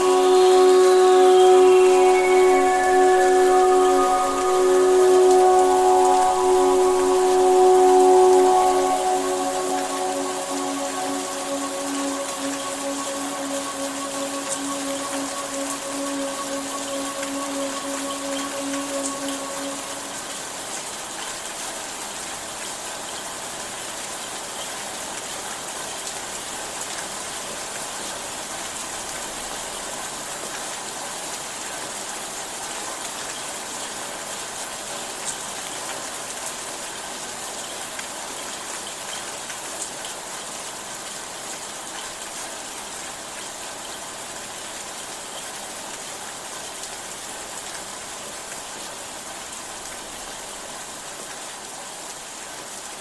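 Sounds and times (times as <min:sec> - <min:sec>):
steady rain hiss: 0:00.0 - 0:20.5.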